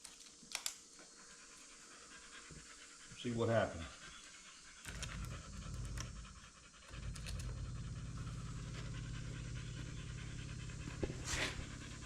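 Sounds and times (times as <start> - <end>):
electric fuel pump buzzing: 4.9 - 12.0.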